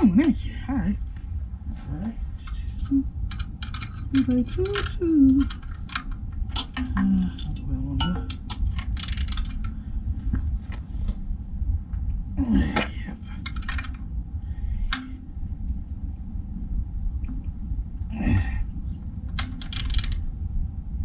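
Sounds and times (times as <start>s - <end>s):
steady low hum: 0.0s - 21.0s
metal tools clinking: 2.4s - 9.8s.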